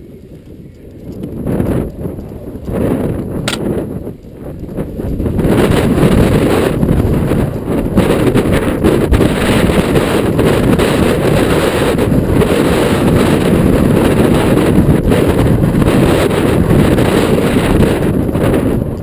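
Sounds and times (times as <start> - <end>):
faint clicks: 0.0 - 5.2
wind buffeting microphone: 0.0 - 19.0.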